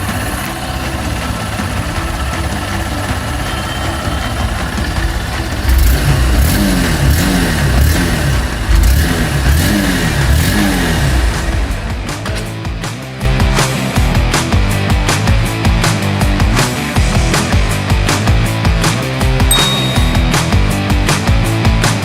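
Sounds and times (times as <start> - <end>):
motorcycle engine running: 0.0 - 12.3.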